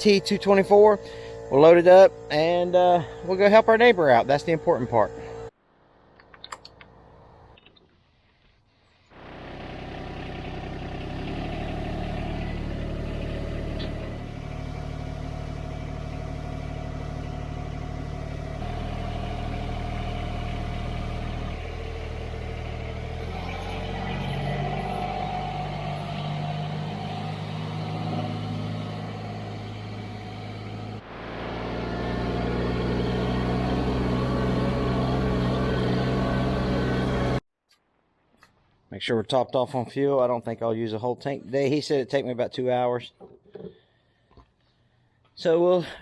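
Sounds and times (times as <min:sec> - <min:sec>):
tractor diesel engine running: 0:00.0 - 0:05.5, 0:09.2 - 0:37.4.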